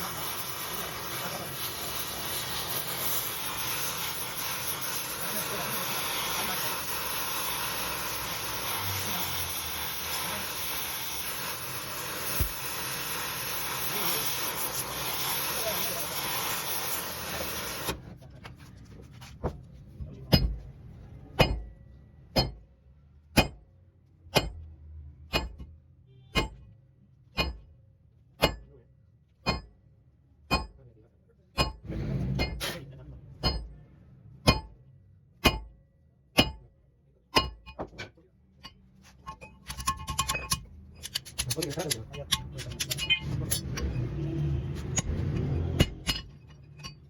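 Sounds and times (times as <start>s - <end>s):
loud hiss: 0.0s - 18.0s
hammer striking metal: 20.3s - 20.6s, 21.4s - 22.7s, 23.3s - 23.6s, 24.3s - 24.7s, 25.3s - 25.7s, 26.3s - 26.7s, 27.3s - 27.7s, 28.4s - 28.7s, 29.4s - 29.8s, 30.5s - 30.8s, 31.6s - 33.8s, 34.4s - 34.8s, 35.4s - 35.8s, 36.4s - 36.7s, 37.3s - 44.0s, 44.7s - 47.0s.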